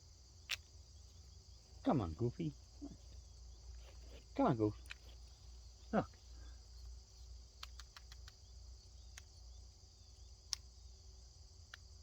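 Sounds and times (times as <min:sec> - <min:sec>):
crickets chirping: 0:00.0 - 0:12.0
sharp ticks: 0:07.5 - 0:08.5, 0:09.1 - 0:09.4, 0:10.4 - 0:10.7.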